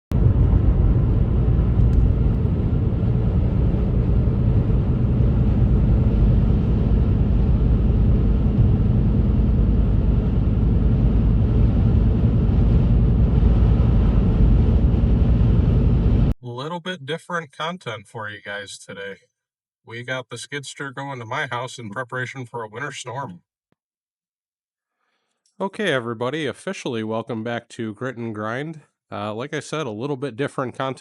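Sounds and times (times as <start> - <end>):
vehicle engine rumbling: 0.1 - 16.3.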